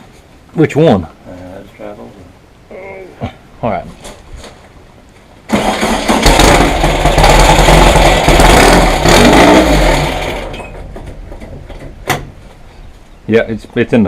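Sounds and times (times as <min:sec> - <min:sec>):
car engine starting and running: 0:05.5 - 0:10.9.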